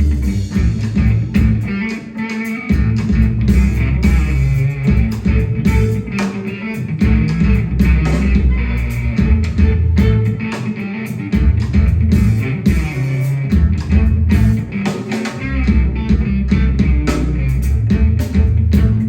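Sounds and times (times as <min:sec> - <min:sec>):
bass guitar: 0:00.0 - 0:19.0
drums: 0:00.0 - 0:19.0
electric guitar: 0:00.0 - 0:19.0.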